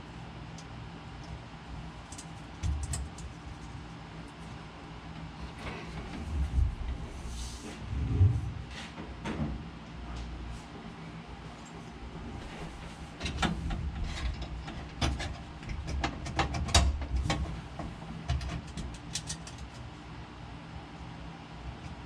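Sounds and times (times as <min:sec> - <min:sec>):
low steady hum: 0:00.0 - 0:22.0
sharp clicks and knocks: 0:13.2 - 0:19.8.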